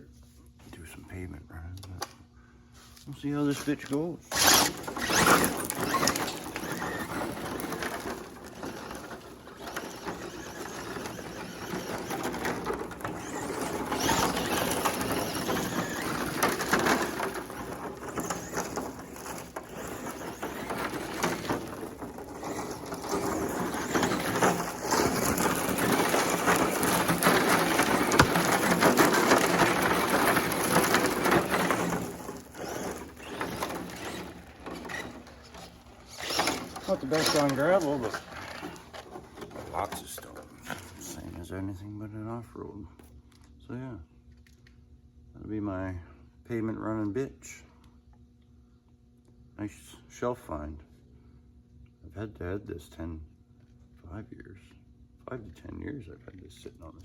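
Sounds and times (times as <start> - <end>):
rc truck tyres crunching gravel: 3.5 - 41.4.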